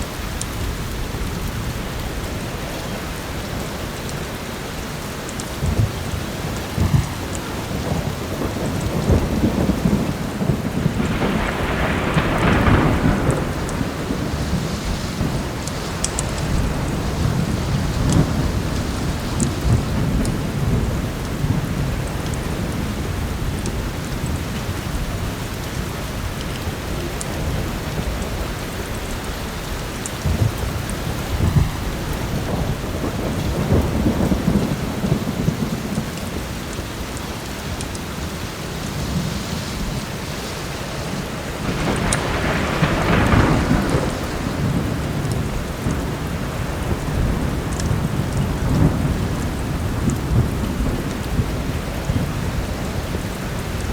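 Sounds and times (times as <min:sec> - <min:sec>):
heavy rain: 0:00.0 - 0:53.9
rolling thunder: 0:00.0 - 0:53.9
wood fire crackling: 0:04.0 - 0:21.4.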